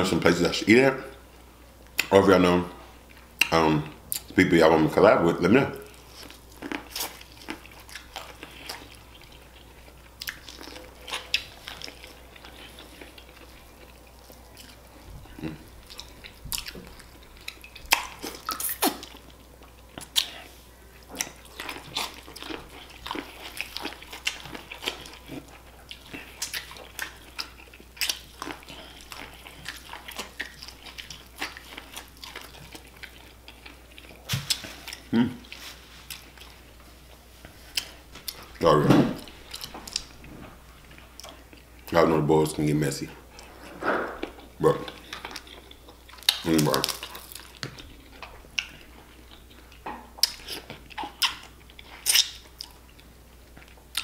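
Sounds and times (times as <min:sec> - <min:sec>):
biting and chewing corn: 0:05.9 - 0:36.6, 0:44.2 - 0:54.0.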